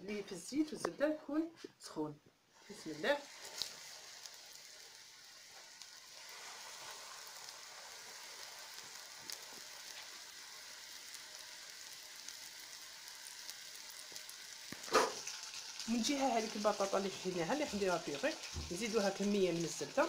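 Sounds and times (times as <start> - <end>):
breaded meat sizzling in oil: 2.5 - 20.0.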